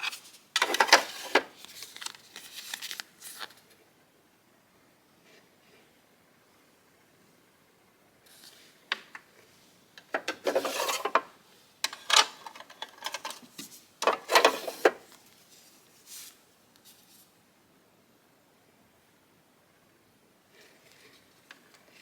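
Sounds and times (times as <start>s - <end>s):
rubbing and scraping: 10.4s - 11.2s, 13.2s - 15.1s.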